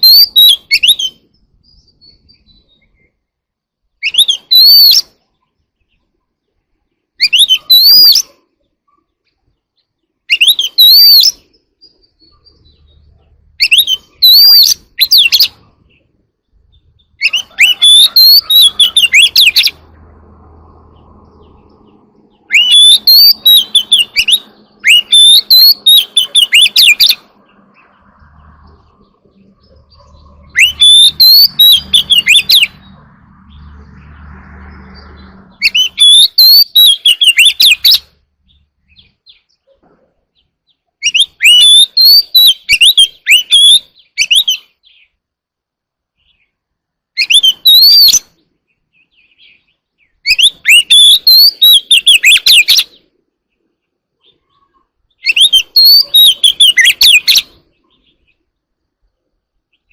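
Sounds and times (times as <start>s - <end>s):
bird singing whistled phrases: 0.0s - 3.2s, 4.0s - 5.2s, 7.2s - 8.3s, 10.3s - 15.6s, 16.8s - 19.8s, 22.3s - 27.3s, 29.6s - 32.8s, 35.5s - 39.4s, 41.0s - 45.1s, 47.2s - 48.3s, 49.0s - 53.0s, 54.5s - 57.6s.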